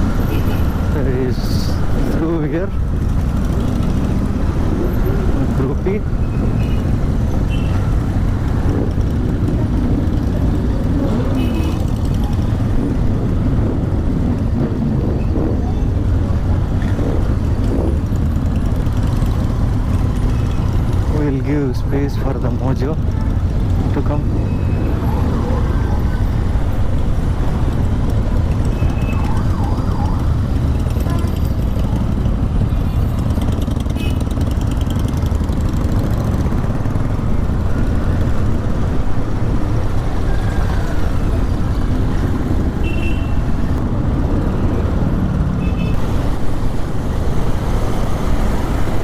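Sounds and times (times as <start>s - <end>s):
other motorcycles: 0.0s - 49.0s
motorcycle engine running: 2.5s - 21.2s, 26.3s - 49.0s
wind rumble on microphone: 2.8s - 21.3s.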